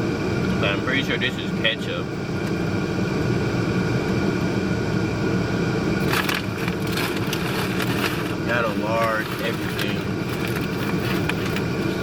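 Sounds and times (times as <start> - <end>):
vehicle rumbling: 0.0 - 12.0
food packaging crinkling: 6.0 - 12.0.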